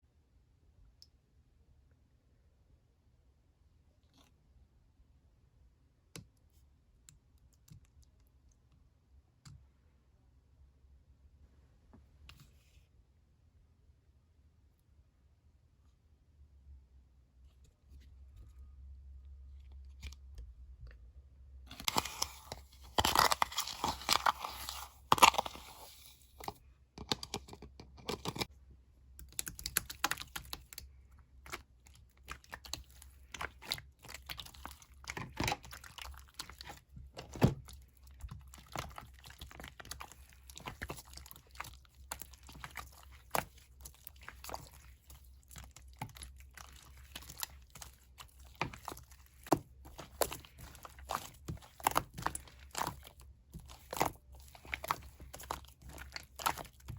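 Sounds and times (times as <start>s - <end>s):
slime with sand crackling: 21.7s - 26.3s, 29.4s - 56.9s.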